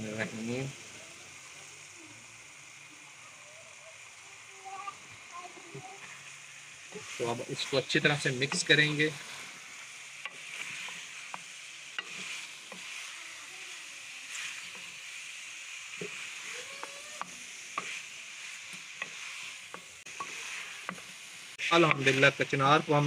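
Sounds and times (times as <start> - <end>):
food sizzling in a metal pot: 0.0 - 23.0
wooden spoon scraping a pot: 5.7 - 22.4.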